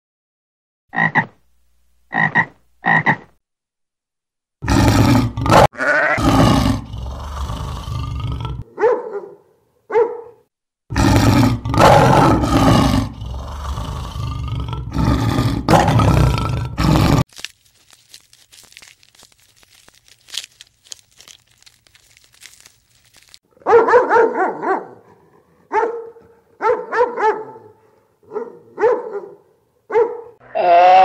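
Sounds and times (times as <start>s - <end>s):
tree frog croaking: 0.9s - 1.4s, 2.1s - 3.3s
deep animal calls: 4.6s - 8.6s, 10.9s - 17.2s, 30.4s - 31.0s
lion roaring: 4.6s - 8.7s, 10.9s - 17.2s
dog yelping: 8.8s - 10.4s, 23.6s - 25.0s, 25.7s - 27.7s, 28.3s - 30.4s.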